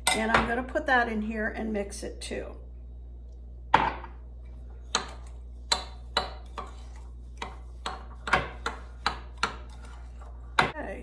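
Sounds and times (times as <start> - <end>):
spoon scraping a bowl: 4.8 - 10.7.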